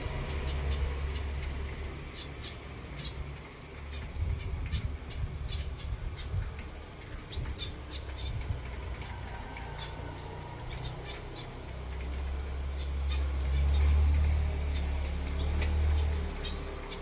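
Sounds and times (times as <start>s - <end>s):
finches chirping: 3.9s - 6.4s, 7.1s - 8.5s, 14.6s - 17.0s.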